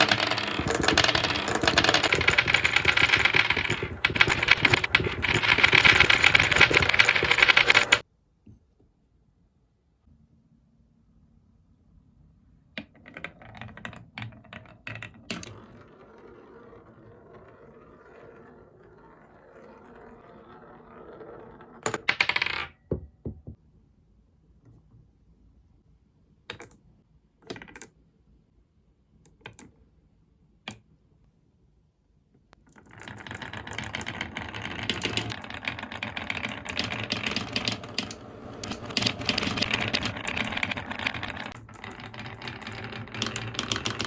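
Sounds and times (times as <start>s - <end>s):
marbles clattering together: 0.0s - 8.0s, 32.8s - 44.0s
marbles clicking: 0.0s - 8.0s, 33.0s - 44.0s
marbles rolling on wooden track: 0.0s - 8.0s, 12.8s - 22.8s, 32.7s - 44.0s.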